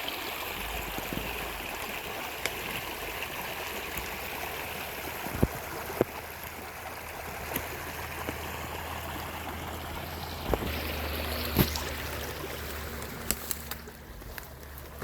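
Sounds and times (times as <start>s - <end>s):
rushing river water: 0.0s - 15.0s.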